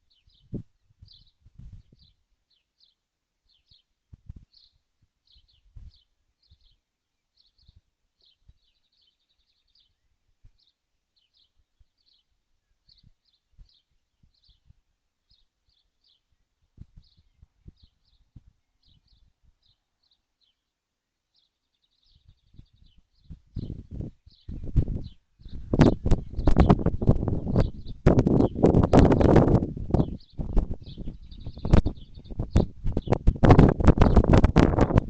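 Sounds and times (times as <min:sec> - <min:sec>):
small bird chirping: 0:00.0 - 0:35.0
buzzy bird trill: 0:21.4 - 0:35.0.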